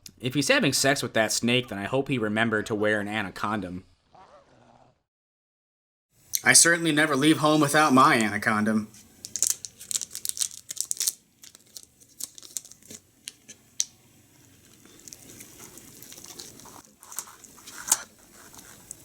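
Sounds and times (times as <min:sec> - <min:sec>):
wrapper crinkling and tearing: 0:09.1 - 0:19.0.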